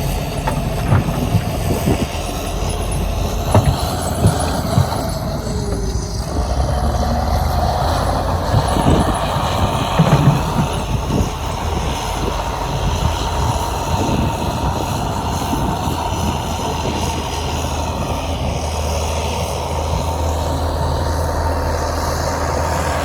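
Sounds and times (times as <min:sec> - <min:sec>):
heavy diesel machinery running: 0:00.0 - 0:23.0
knocks and thuds: 0:00.4 - 0:02.2, 0:03.3 - 0:06.5, 0:08.5 - 0:11.4.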